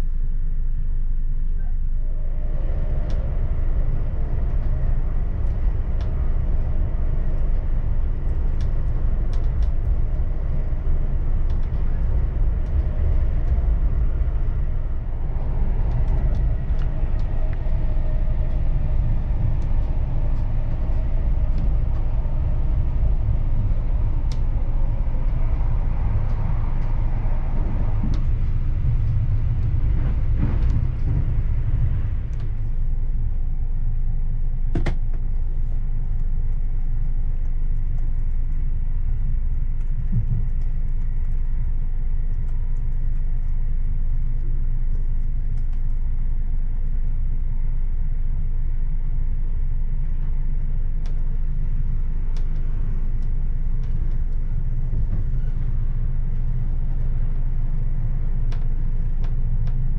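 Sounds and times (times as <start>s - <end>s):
train wheels rumbling on rail: 2.4s - 33.7s.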